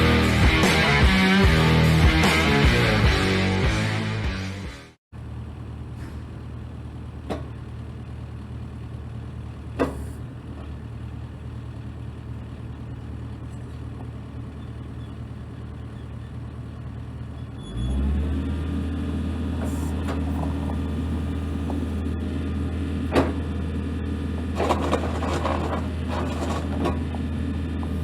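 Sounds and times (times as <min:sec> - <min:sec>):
excavator diesel engine idling: 0:05.2 - 0:18.0, 0:19.2 - 0:28.0.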